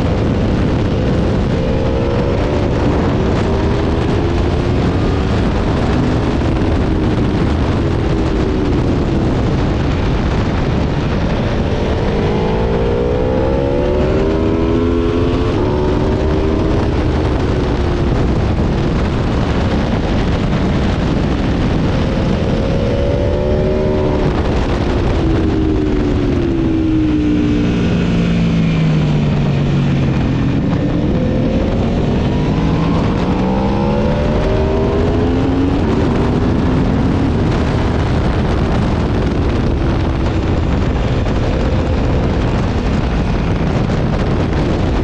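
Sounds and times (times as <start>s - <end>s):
motorcycle engine accelerating: 0.0s - 45.0s
wind rush over microphone: 0.0s - 45.0s.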